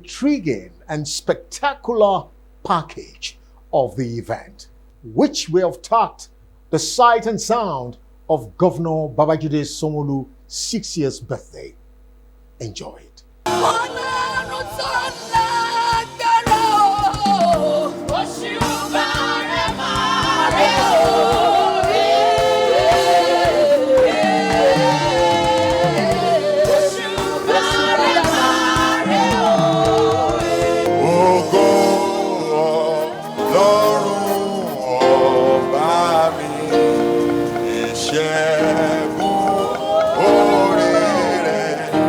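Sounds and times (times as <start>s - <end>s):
drums: 13.4s - 42.0s
group of voices singing: 13.5s - 42.0s.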